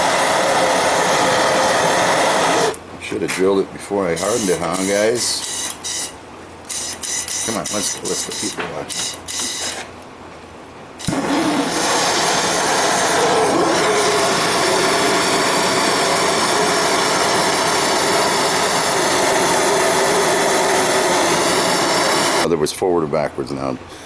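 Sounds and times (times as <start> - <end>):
torch flame hissing: 0.0 - 2.8, 11.0 - 22.5
gas torch igniting click: 0.2 - 2.8, 11.0 - 22.5.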